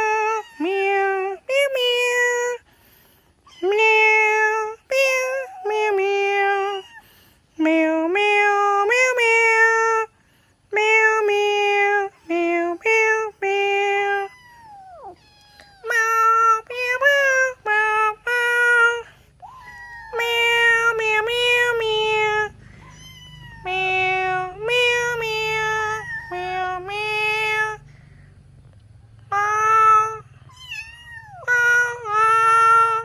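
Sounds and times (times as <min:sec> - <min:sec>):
kittens meowing: 0:00.0 - 0:02.6, 0:03.4 - 0:07.2, 0:11.6 - 0:27.8, 0:29.4 - 0:33.0.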